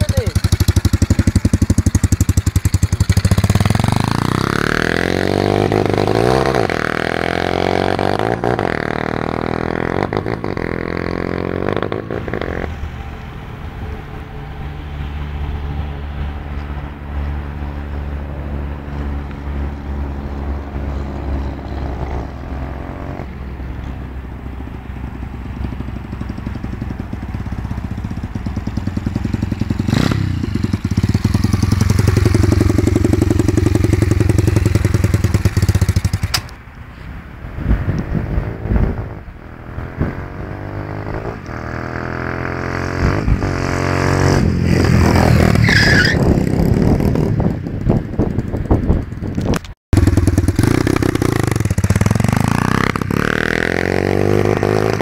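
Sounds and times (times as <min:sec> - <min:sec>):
motorcycle engine revving: 0:00.0 - 0:14.8, 0:25.1 - 0:36.6, 0:38.0 - 0:55.0
sharp click: 0:36.2 - 0:36.6.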